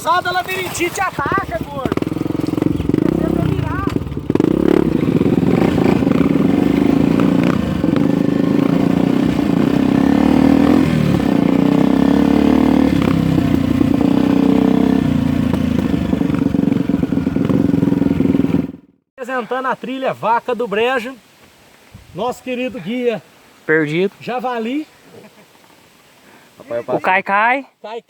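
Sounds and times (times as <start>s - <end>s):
dirt bike engine running: 0.0s - 19.0s.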